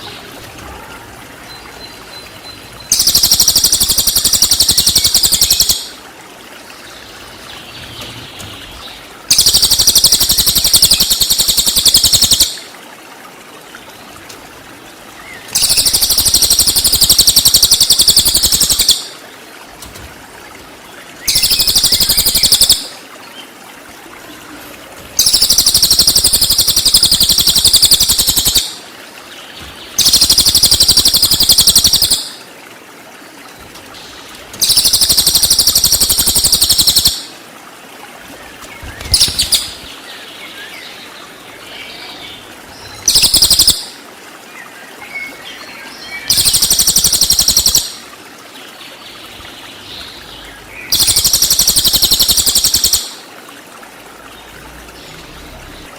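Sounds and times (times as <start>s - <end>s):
bird high-pitched trilling: 2.9s - 6.0s, 9.3s - 12.6s, 15.6s - 19.1s, 21.3s - 22.9s, 25.2s - 28.8s, 30.0s - 32.4s, 34.6s - 37.3s, 39.0s - 39.9s, 43.0s - 43.9s, 46.3s - 48.0s, 50.9s - 53.2s.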